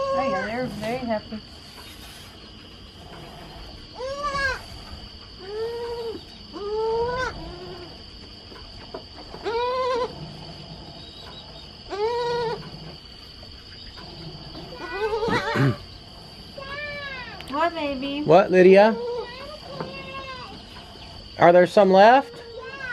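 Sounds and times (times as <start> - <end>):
high insect drone: 0.0 - 22.9
goat kids bleating: 3.9 - 4.7, 5.4 - 8.0, 9.3 - 10.2, 11.9 - 12.7, 14.5 - 15.9, 16.5 - 17.5, 18.7 - 20.9, 22.2 - 22.9.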